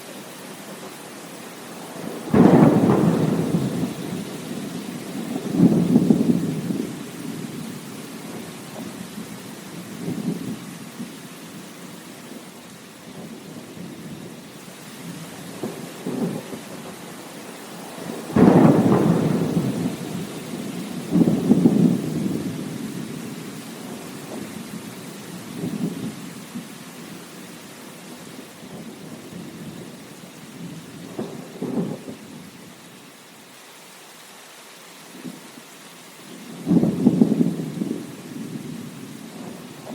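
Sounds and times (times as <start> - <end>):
rain hissing: 0.0 - 39.9.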